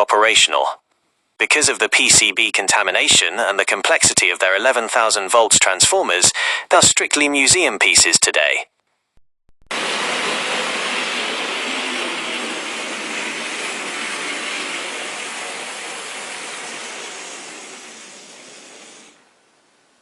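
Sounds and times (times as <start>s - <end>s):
model train whirring rattle: 9.8s - 19.2s.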